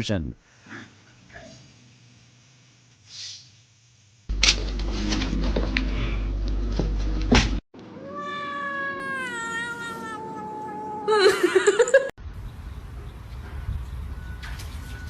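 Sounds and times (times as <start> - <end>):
cat meowing: 8.0 - 11.2.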